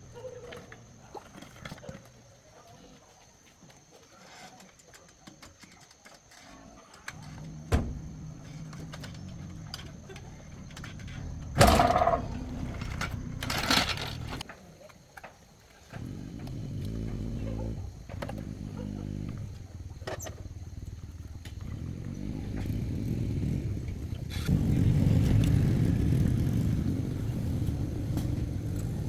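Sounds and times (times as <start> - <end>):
tractor diesel engine running: 7.2 - 14.4, 16.0 - 29.0.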